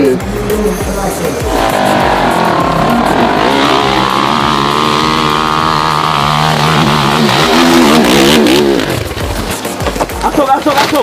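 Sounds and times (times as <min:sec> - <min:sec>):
dirt bike engine revving: 0:01.5 - 0:09.8.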